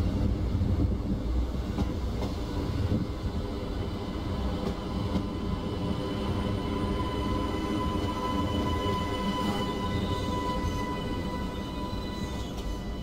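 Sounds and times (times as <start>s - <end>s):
train rumbling past: 0.0s - 13.0s
train wheels clicking: 0.8s - 3.1s, 4.5s - 5.4s.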